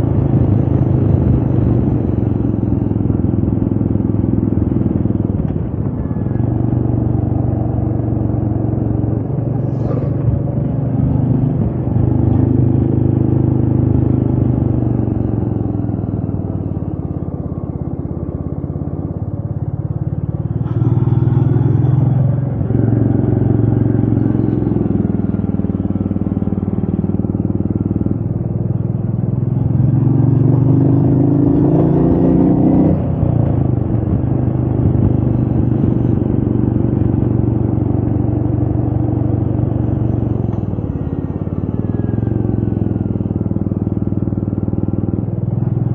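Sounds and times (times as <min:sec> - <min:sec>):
motorcycle engine revving: 0:00.0 - 0:45.9
wind noise on microphone: 0:32.8 - 0:37.6.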